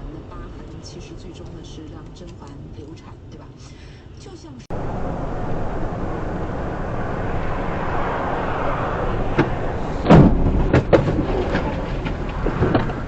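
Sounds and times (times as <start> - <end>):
road and engine rumble: 0.0 - 13.0
loud heavy thump: 6.6 - 13.0.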